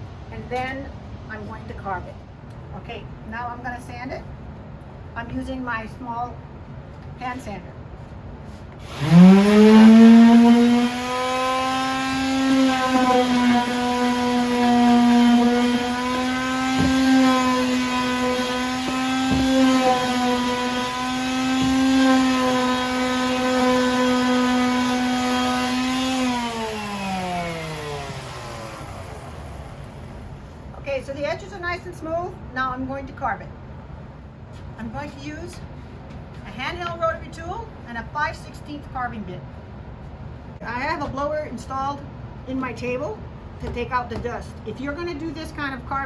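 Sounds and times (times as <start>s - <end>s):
electric hand sander humming: 8.8s - 30.0s.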